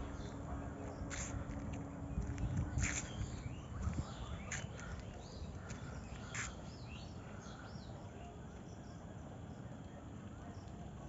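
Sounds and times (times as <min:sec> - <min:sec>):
birds chirping: 0:00.0 - 0:11.0
steady low rumble: 0:00.0 - 0:11.0
harsh bird calls: 0:02.4 - 0:08.0.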